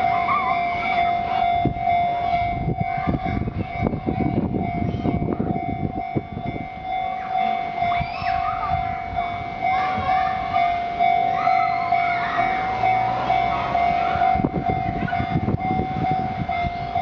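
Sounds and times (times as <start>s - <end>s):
level crossing warning tone: 0.0s - 17.0s.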